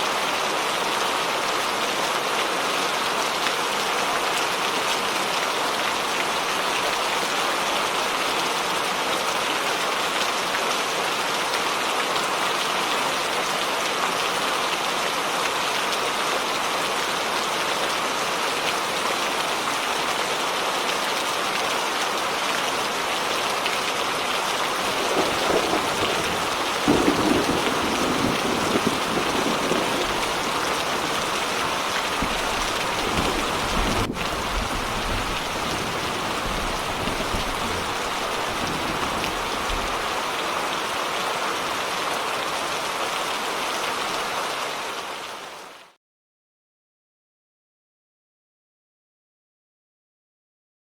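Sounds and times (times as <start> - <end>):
heavy rain falling: 0.0 - 46.0
thunder rumbling: 24.7 - 40.2.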